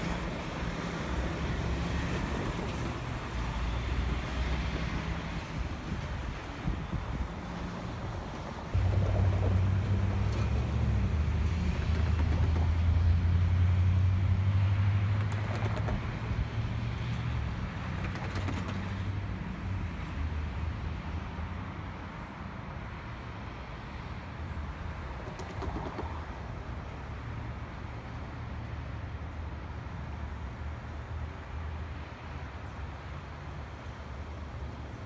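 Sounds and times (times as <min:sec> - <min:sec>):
train engine drone: 0:00.0 - 0:18.0.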